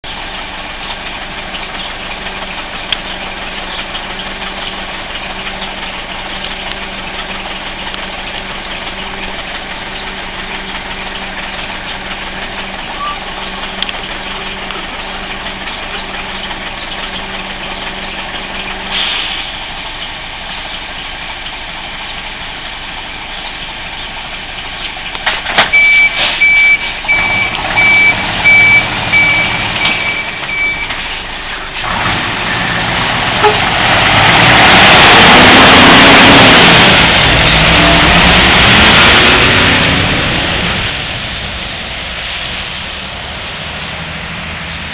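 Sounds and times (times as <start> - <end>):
diesel truck engine: 0.0 - 44.9
reversing beeper beeps: 25.7 - 31.0.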